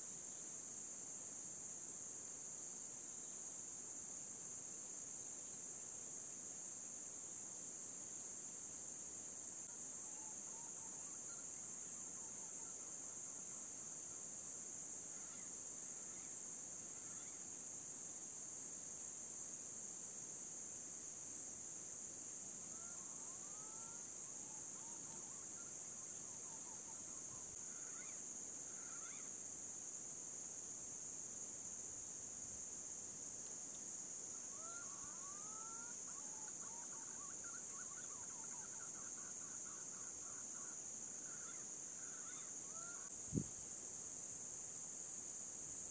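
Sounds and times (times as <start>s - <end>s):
high-pitched insect trill: 2.8s - 45.9s
faint whistled bird calls: 22.7s - 29.3s, 34.4s - 43.6s.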